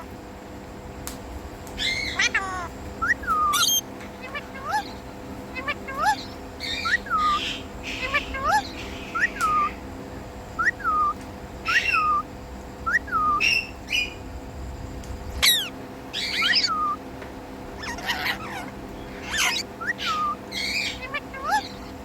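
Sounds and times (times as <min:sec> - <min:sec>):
parrot whistled chirps: 0:01.8 - 0:05.0, 0:05.6 - 0:09.8, 0:10.6 - 0:14.2, 0:15.4 - 0:17.0, 0:17.8 - 0:21.9
parrot squawks: 0:01.8 - 0:09.8, 0:10.6 - 0:12.3, 0:15.4 - 0:17.0, 0:17.8 - 0:22.0.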